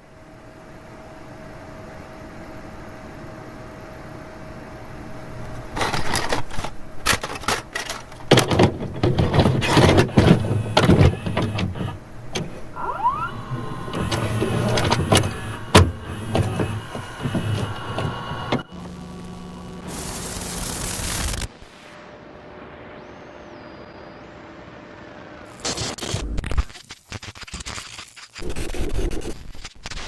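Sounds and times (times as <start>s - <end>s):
tape static hiss: 0.0s - 30.0s
distorted crackling bursts: 5.2s - 30.0s.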